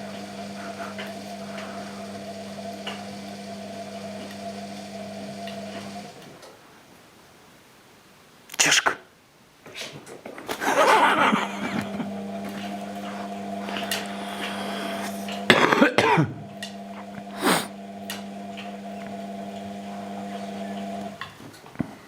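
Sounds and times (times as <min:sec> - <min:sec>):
washing machine motor humming: 0:00.0 - 0:06.4, 0:10.6 - 0:21.3.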